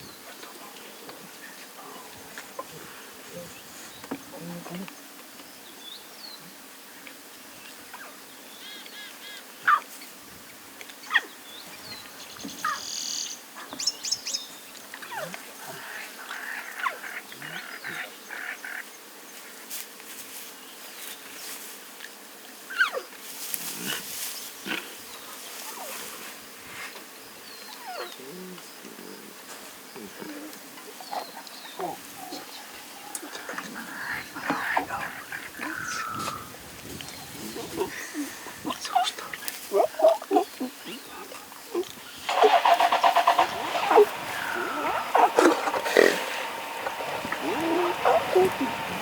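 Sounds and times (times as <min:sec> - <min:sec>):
faint bush background: 0:00.0 - 0:49.0
crackling eating noises: 0:27.8 - 0:49.0
lion cubs high-pitched calls: 0:42.2 - 0:49.0.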